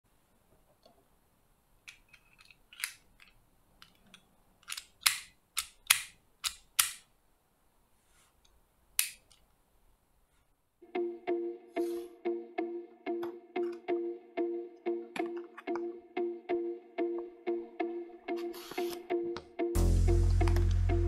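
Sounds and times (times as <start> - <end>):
metallic clicks and snaps: 1.9 - 7.1, 8.4 - 9.5.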